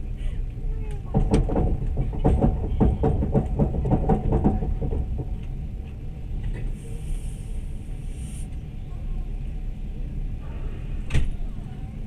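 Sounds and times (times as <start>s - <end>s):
train rumbling: 0.0s - 12.0s
knocks and rattles: 1.1s - 6.0s.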